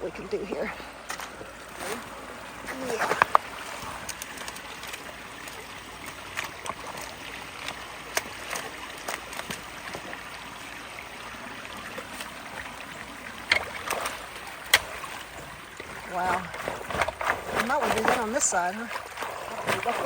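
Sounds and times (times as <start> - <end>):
water rushing through culvert: 0.0 - 20.0.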